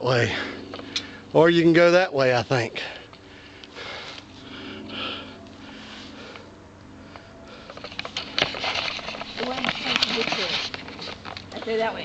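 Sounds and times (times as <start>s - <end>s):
low rolling bike noise: 0.0s - 12.0s
breathing close to microphone: 2.7s - 8.2s.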